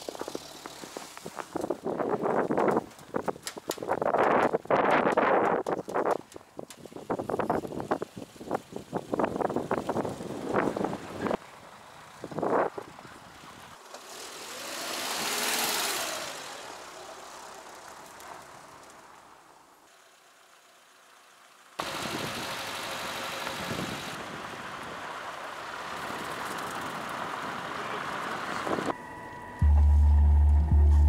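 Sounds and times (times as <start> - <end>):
car engine and road noise: 0.0 - 31.0
vehicle passing: 10.0 - 29.0.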